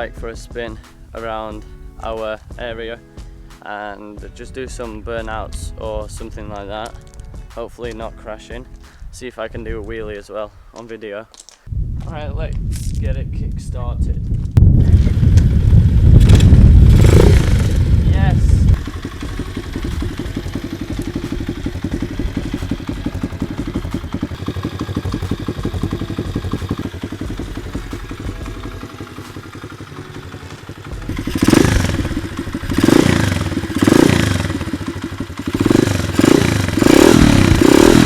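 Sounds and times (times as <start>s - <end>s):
motorbike engine idling and revving: 14.6s - 38.0s.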